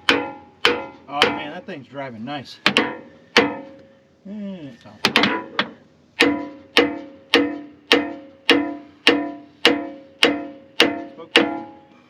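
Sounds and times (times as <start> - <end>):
hammer striking steel pin: 0.0 - 1.5, 2.6 - 3.8, 5.0 - 11.9.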